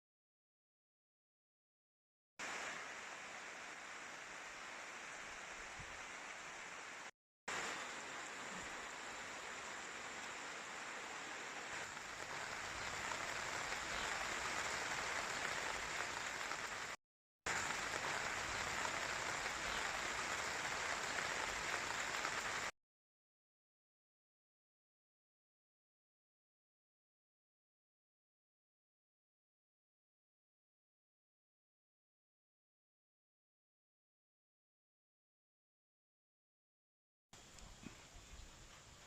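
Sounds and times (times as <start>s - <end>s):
light rain falling: 2.4s - 22.7s.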